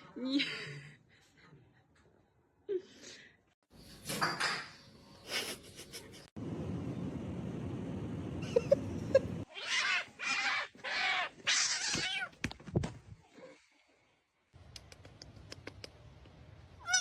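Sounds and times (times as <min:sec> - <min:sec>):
cat yowling: 0:09.5 - 0:12.3.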